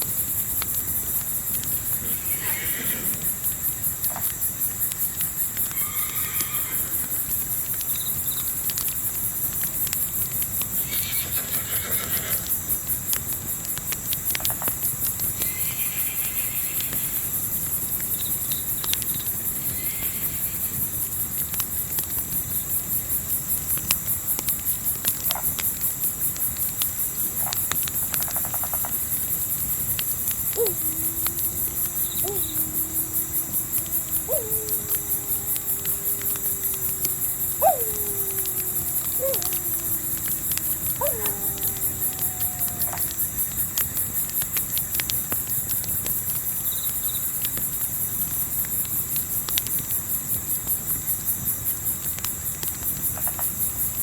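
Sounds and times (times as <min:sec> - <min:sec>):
crickets chirping: 0:00.0 - 0:44.5
campfire crackling: 0:24.7 - 0:45.3.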